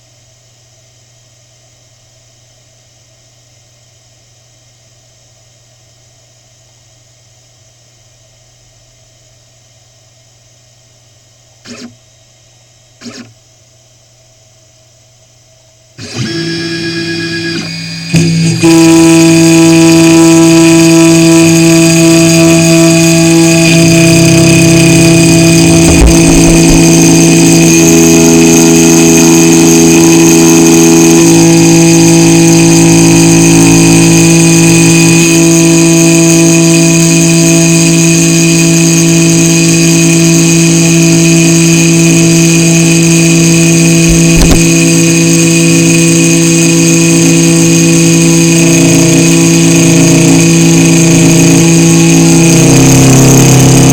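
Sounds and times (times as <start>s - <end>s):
axis motor tones: 11.6s - 12.0s, 13.0s - 13.4s, 16.0s - 29.6s, 44.0s - 44.9s
cnc spindle motor whining: 11.6s - 12.1s, 13.0s - 13.4s, 16.0s - 53.9s
short low knocks: 25.6s - 27.2s.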